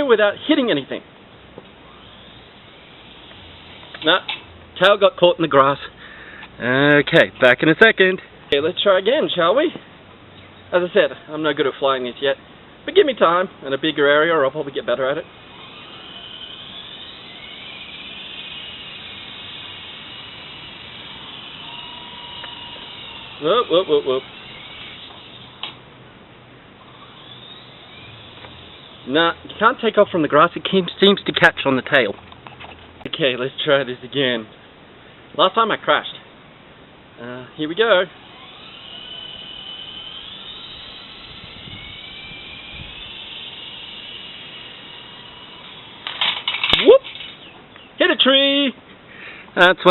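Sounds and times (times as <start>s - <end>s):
rc helicopter motor whine: 1.6s - 4.6s, 14.2s - 25.9s, 26.8s - 31.3s, 37.8s - 47.5s
rotor blades hissing: 1.8s - 4.4s, 14.9s - 25.8s, 26.8s - 30.1s, 37.8s - 47.5s.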